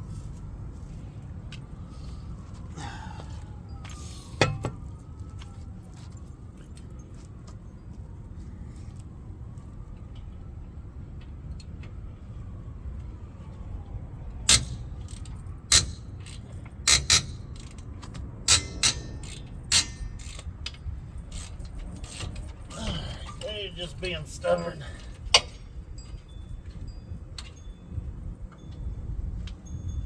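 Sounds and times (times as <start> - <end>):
sharp metal knocks: 4.4 - 4.9, 14.5 - 20.5.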